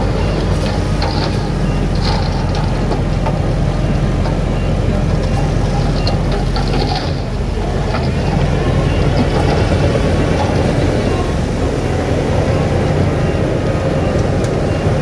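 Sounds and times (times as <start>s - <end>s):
diesel machinery running: 0.0s - 15.0s.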